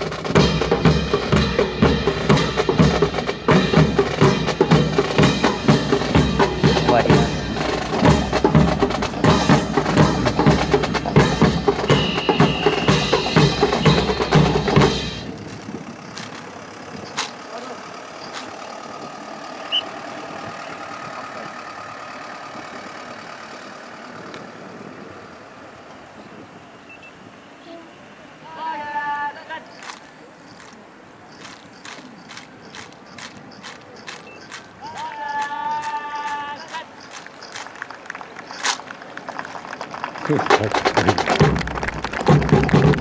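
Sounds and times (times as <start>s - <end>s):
marching snare and bass drums: 0.0s - 17.4s, 40.0s - 43.0s
faint clicks: 15.3s - 17.5s, 29.7s - 40.2s.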